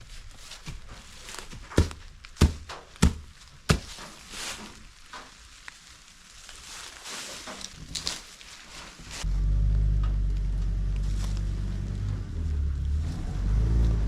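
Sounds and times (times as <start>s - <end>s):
rustling: 0.0s - 14.0s
sharp heavy thuds: 1.4s - 4.2s.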